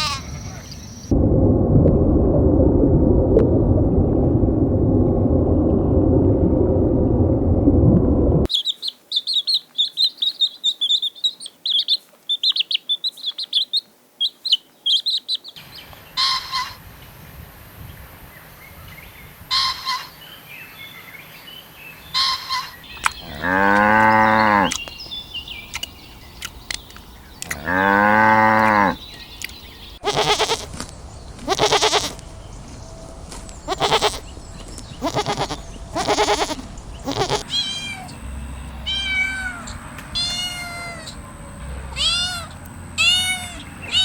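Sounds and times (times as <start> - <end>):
loud low rushing noise: 1.1 - 8.5, 30.7 - 40.0
rapid high bird chirping: 8.5 - 15.6, 22.8 - 40.4
short bird calls: 8.5 - 16.7, 22.1 - 38.2.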